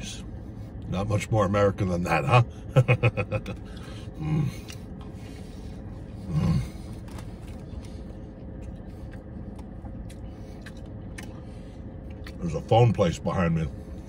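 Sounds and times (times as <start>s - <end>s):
steady low hum: 0.0s - 14.0s
man chewing sandwich: 2.9s - 13.0s, 13.7s - 14.0s.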